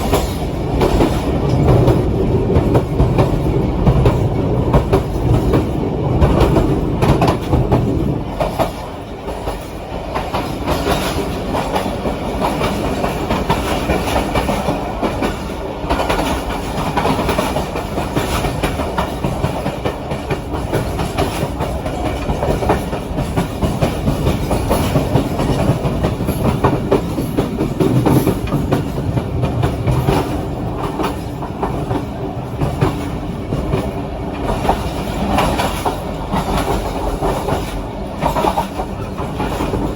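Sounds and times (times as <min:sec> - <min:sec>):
train rumbling along track: 0:00.0 - 0:39.9
wheels clicking over rail joints: 0:00.0 - 0:39.9.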